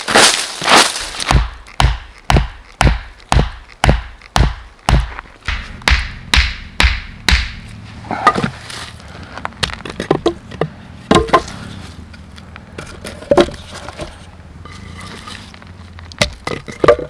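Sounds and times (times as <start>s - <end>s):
irregular knocks and clicks: 1.3s - 7.6s.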